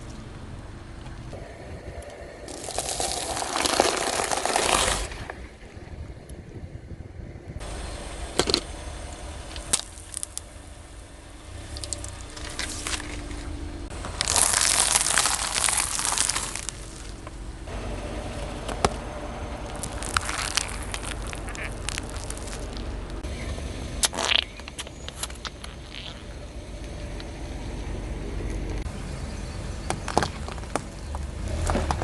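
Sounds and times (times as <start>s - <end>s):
low steady rumble: 0.0s - 32.0s
tyre crushing crunchy objects: 2.5s - 5.4s, 9.4s - 10.5s, 11.6s - 17.5s, 19.6s - 23.3s, 29.8s - 32.0s.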